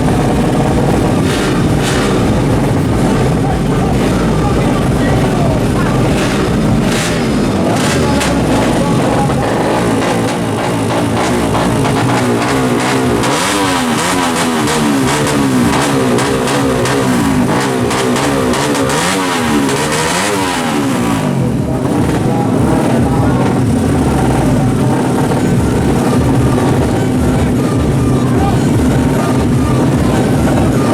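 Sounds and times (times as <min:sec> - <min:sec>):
two-stroke engine revving: 0:00.0 - 0:30.9.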